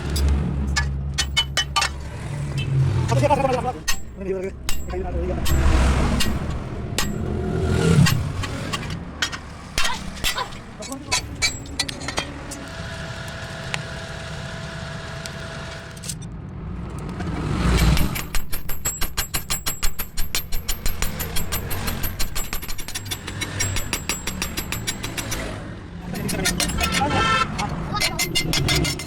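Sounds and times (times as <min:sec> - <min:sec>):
steady machine hum: 0:10.6 - 0:16.0.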